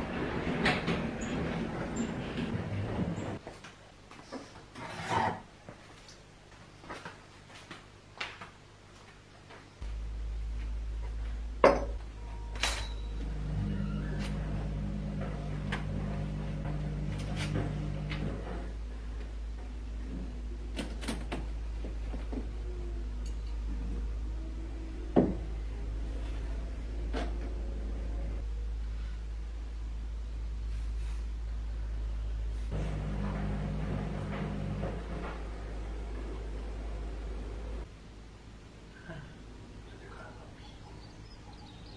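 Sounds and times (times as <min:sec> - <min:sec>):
appliance low hum: 0:00.0 - 0:03.5, 0:09.8 - 0:39.6
pitched hum: 0:09.8 - 0:20.8, 0:31.6 - 0:38.0.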